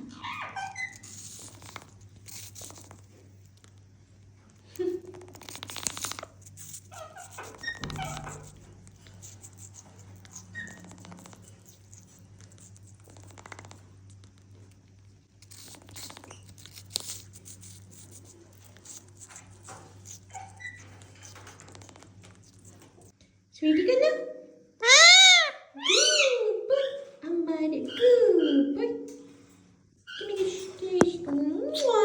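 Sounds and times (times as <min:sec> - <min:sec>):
parrots squeaking and chirping: 0:00.0 - 0:03.0, 0:05.1 - 0:13.8, 0:15.4 - 0:22.9, 0:24.8 - 0:27.1, 0:27.8 - 0:28.7
light clicks and rustling: 0:01.2 - 0:23.2.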